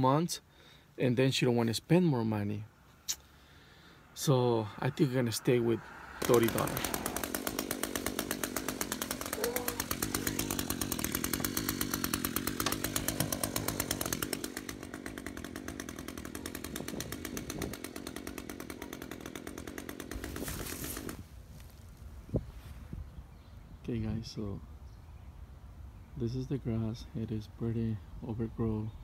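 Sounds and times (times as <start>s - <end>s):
string trimmer engine idling: 6.0s - 21.8s.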